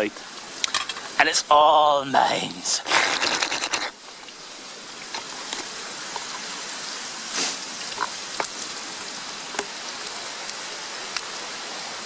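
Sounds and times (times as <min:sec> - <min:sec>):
food sizzling in a frying pan: 0:03.9 - 0:10.2.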